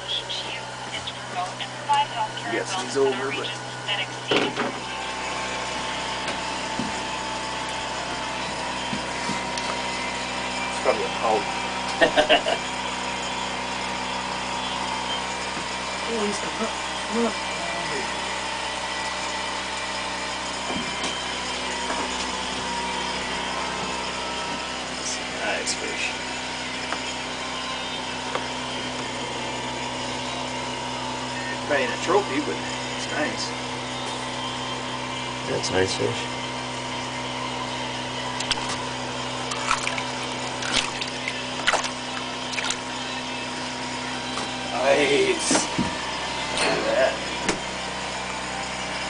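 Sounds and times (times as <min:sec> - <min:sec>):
steady mechanical hum: 0:00.0 - 0:49.0
water splashing: 0:39.5 - 0:42.8.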